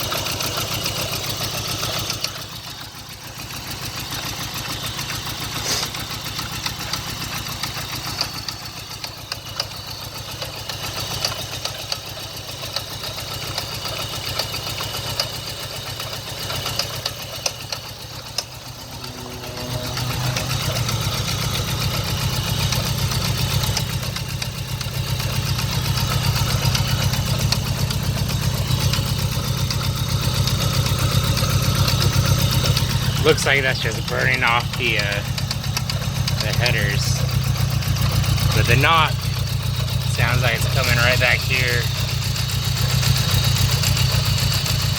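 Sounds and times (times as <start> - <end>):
engine idling with rapid knock: 0.0 - 44.9.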